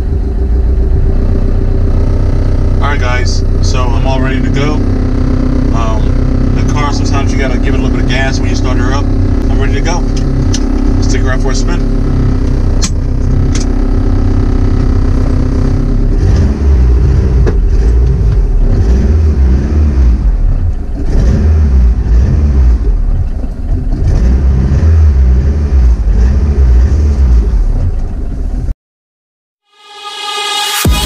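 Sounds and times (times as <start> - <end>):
car engine revving: 0.0 - 28.7, 29.7 - 31.0.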